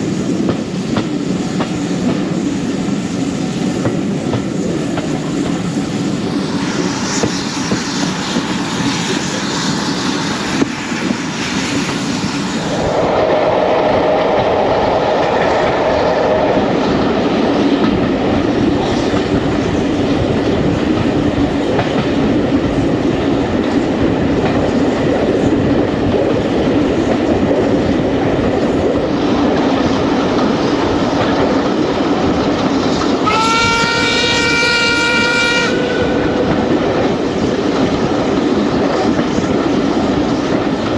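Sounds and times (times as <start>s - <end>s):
train wheels clattering on rails: 0.0s - 12.8s, 13.8s - 40.9s
locomotive whistle: 33.2s - 36.4s.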